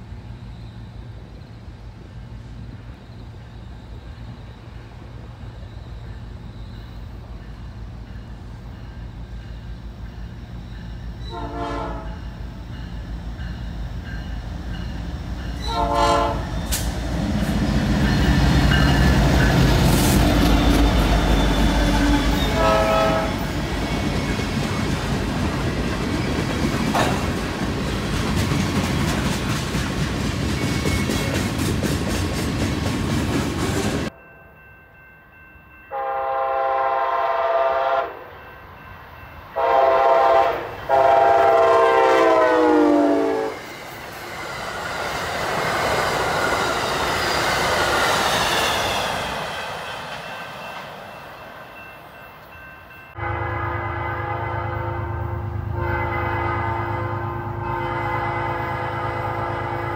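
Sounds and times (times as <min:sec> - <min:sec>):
train wheels clickety-clack: 0:06.2 - 0:34.1
train horn blasts: 0:11.2 - 0:12.3, 0:15.6 - 0:16.8, 0:20.3 - 0:23.5, 0:35.9 - 0:38.3, 0:39.5 - 0:43.6, 0:53.2 - 0:59.9.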